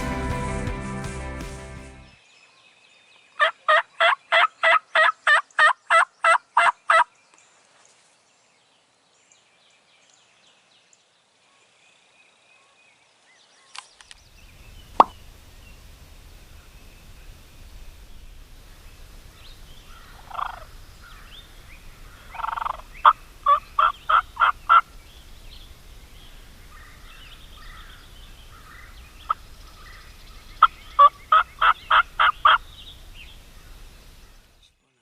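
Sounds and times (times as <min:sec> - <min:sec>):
rough turkey call: 0:18.7 - 0:34.6
turkey yelping: 0:19.8 - 0:25.0, 0:30.6 - 0:33.9.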